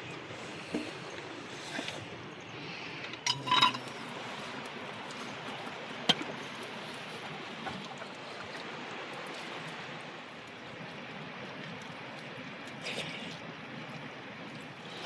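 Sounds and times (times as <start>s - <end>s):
ringing clink: 3.3s - 4.0s.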